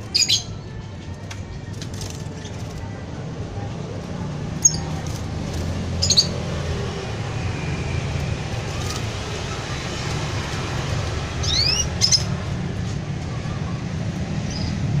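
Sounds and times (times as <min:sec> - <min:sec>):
canary chirping: 0:00.0 - 0:00.8, 0:04.3 - 0:12.6.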